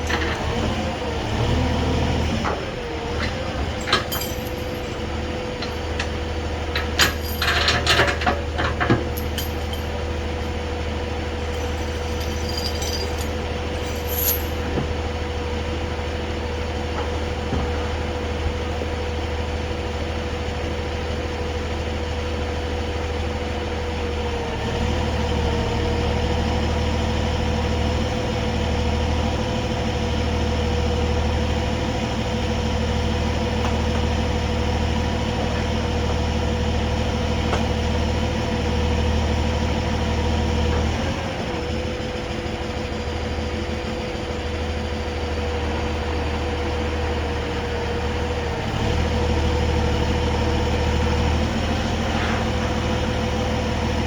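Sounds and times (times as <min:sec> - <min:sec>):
diesel truck engine running: 0:00.0 - 0:54.0
constant whine: 0:02.4 - 0:14.8.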